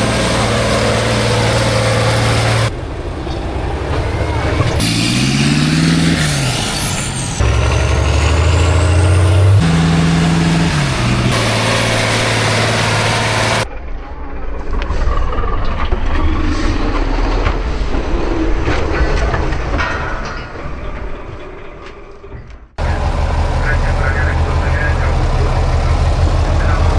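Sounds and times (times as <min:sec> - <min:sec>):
diesel truck engines revving: 0:00.0 - 0:13.7, 0:22.8 - 0:26.9.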